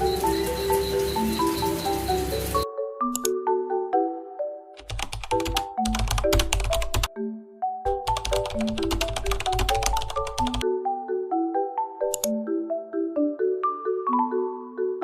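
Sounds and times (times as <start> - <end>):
fast clicking beat: 4.8 - 7.1, 8.1 - 10.6.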